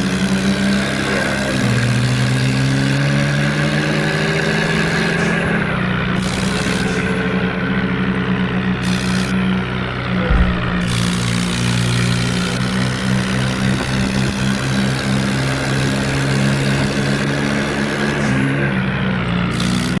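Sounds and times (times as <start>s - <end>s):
diesel tractor engine running: 0.0s - 20.0s
low thump: 10.2s - 11.6s.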